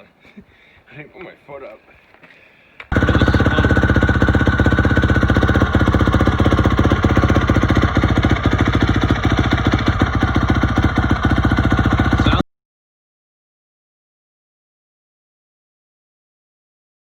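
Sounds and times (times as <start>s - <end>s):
motorcycle engine running: 2.9s - 12.4s.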